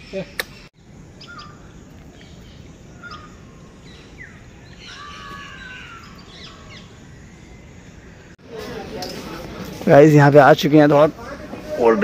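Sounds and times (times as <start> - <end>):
birds chirping and calling: 0.0 - 8.4
low outdoor background hum: 0.0 - 12.0.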